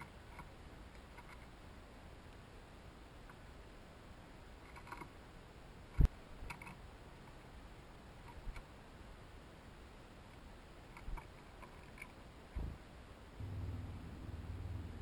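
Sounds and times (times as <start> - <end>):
dull thump: 12.6 - 12.8.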